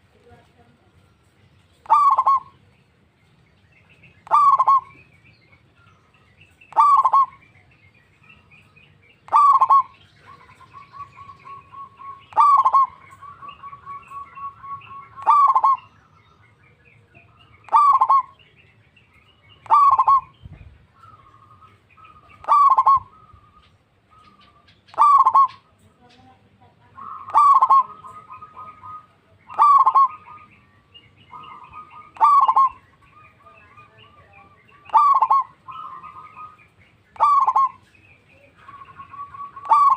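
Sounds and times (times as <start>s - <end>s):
dove cooing: 1.7s - 2.7s, 4.2s - 5.1s, 6.7s - 7.6s, 9.3s - 15.9s, 17.1s - 18.5s, 19.6s - 20.4s, 21.0s - 26.0s, 26.8s - 39.9s.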